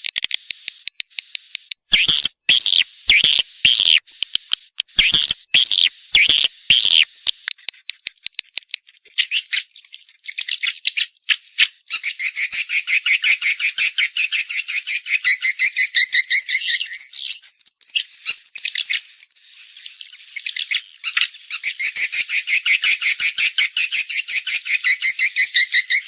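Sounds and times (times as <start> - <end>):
swiftlets twittering: 0.2 - 8.2.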